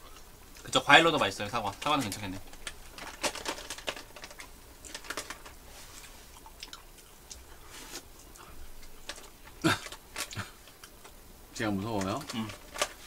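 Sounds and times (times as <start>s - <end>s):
chewing and lip smacks: 6.3s - 7.6s.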